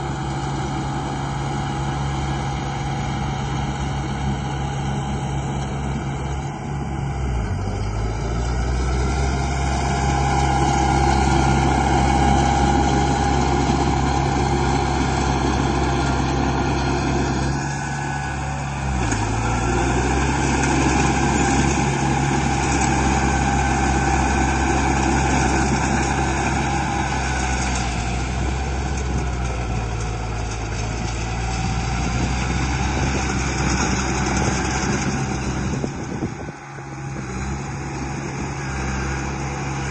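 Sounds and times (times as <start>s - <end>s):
model vehicle engine drone: 0.0s - 39.9s.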